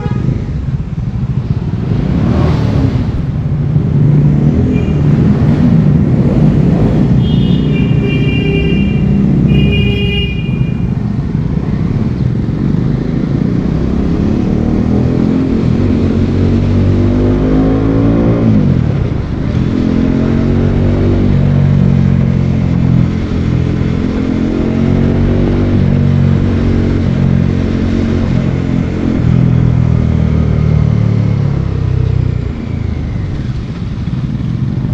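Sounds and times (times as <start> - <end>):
vehicle horn honking: 0.0 - 0.5, 4.7 - 5.3, 7.2 - 11.0
motorcycle engine accelerating: 0.0 - 34.9.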